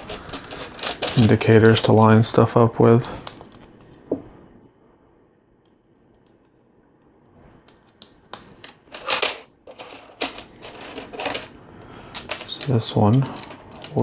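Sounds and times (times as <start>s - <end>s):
plastic bricks clicking and rattling: 0.1s - 1.9s.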